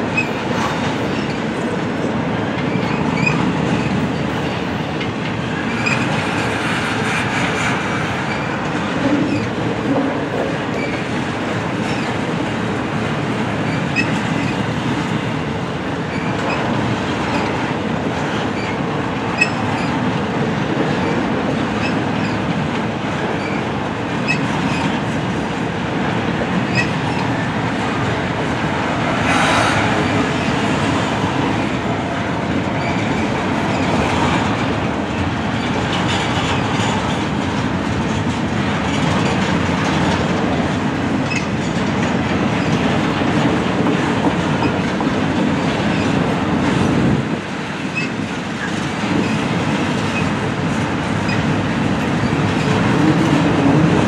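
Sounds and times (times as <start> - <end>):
train wheels rumbling on rail: 0.0 - 54.0
wheels clicking over rail joints: 16.0 - 54.0.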